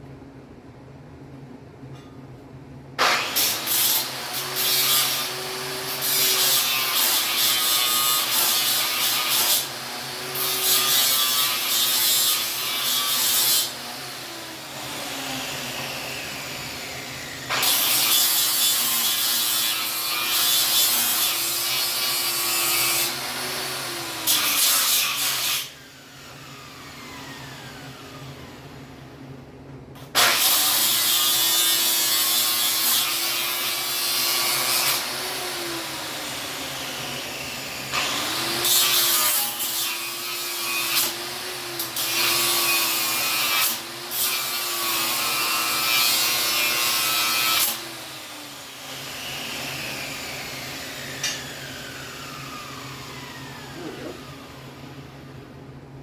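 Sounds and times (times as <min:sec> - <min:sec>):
angle grinder grinding steel: 0:03.0 - 0:25.8.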